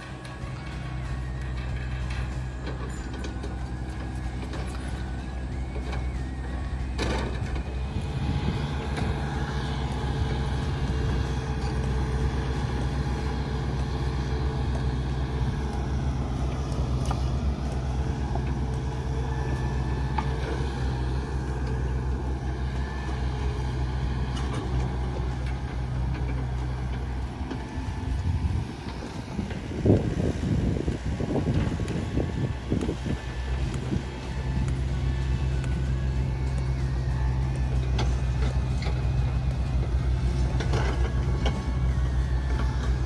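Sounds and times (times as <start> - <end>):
vehicle engines and road noise: 0.0 - 43.0
wind gusts on microphone: 20.6 - 37.4.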